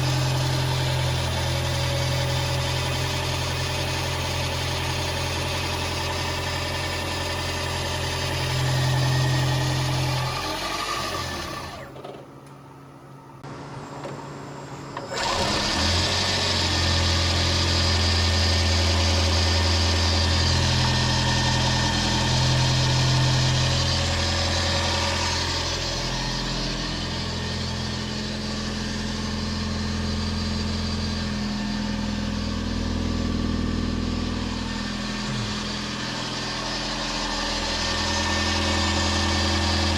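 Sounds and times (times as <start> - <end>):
car engine idling: 18.5 - 39.9.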